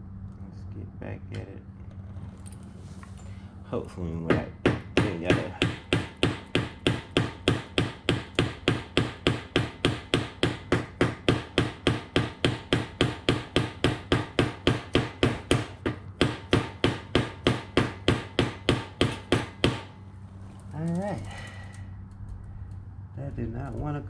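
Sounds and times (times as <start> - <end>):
hammer striking rapidly: 4.3 - 20.0.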